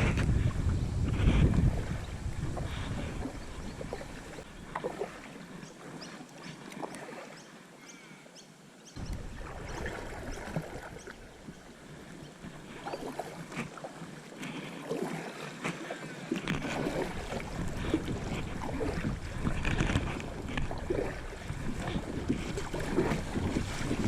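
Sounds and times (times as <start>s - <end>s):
low microphone rumble: 0.0s - 4.4s
small clicks and splashes: 6.3s - 7.3s, 12.9s - 21.2s
water splashing and dripping: 9.0s - 11.6s, 16.4s - 24.0s.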